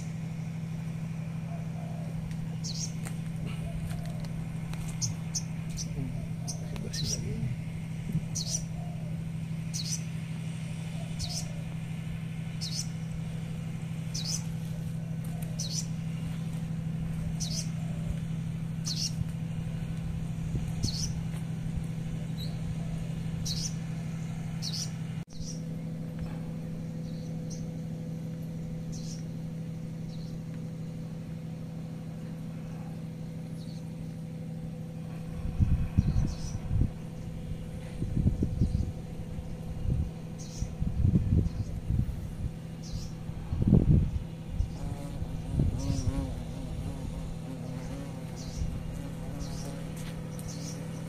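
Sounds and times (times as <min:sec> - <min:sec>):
steady low hum: 0:00.0 - 0:51.0
bird chirping: 0:01.5 - 0:04.3, 0:04.9 - 0:07.4, 0:08.2 - 0:10.1, 0:10.9 - 0:11.6, 0:12.6 - 0:13.2, 0:14.1 - 0:14.5, 0:15.3 - 0:16.0, 0:17.2 - 0:18.2, 0:18.8 - 0:19.2, 0:20.8 - 0:21.2, 0:22.3 - 0:23.9, 0:24.6 - 0:25.6, 0:28.9 - 0:29.3, 0:39.8 - 0:40.8, 0:42.8 - 0:43.2, 0:45.8 - 0:46.3, 0:49.3 - 0:51.0.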